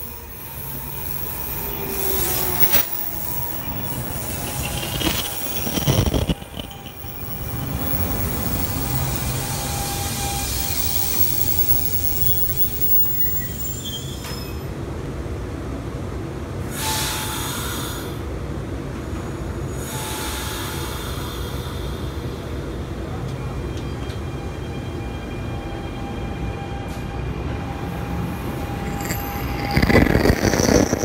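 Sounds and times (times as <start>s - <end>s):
high wheel squeal: 0.0s - 14.7s, 27.7s - 31.0s
steel wheels on rail: 0.0s - 14.7s, 26.8s - 31.0s.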